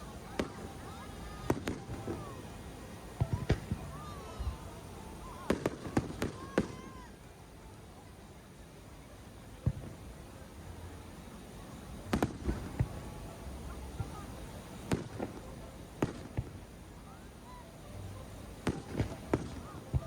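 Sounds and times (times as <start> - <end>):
fireworks bangs: 0.0 - 4.6, 5.3 - 7.1, 12.0 - 16.7, 18.6 - 20.0.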